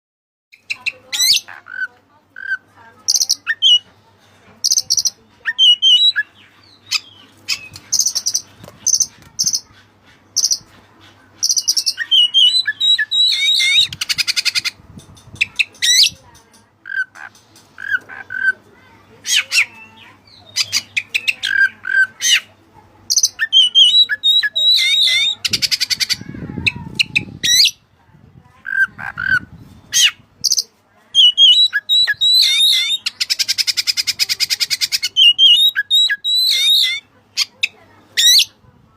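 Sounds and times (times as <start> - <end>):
bird singing whistled phrases: 5.0 - 6.3, 11.5 - 14.1, 23.2 - 25.7, 31.2 - 34.1, 34.8 - 37.0.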